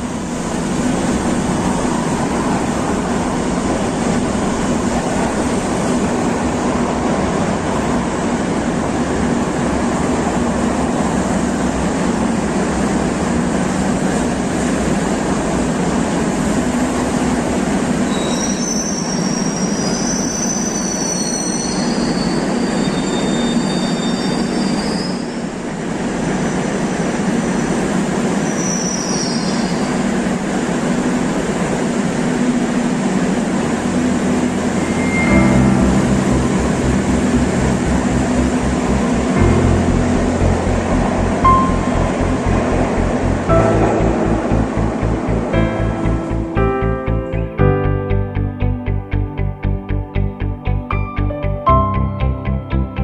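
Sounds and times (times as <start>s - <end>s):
train rumbling on rails: 0.0s - 50.9s
high wheel squeal: 18.1s - 25.5s, 28.4s - 30.0s, 34.6s - 36.1s.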